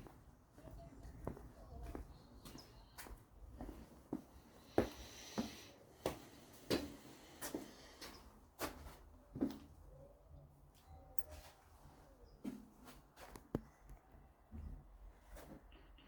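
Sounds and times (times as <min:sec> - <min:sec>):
footsteps: 0:00.0 - 0:09.6.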